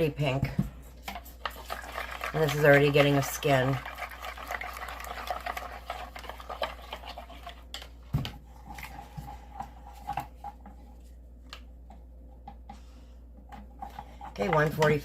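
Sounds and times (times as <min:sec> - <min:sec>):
utensil scraping a cup: 0:01.0 - 0:07.6.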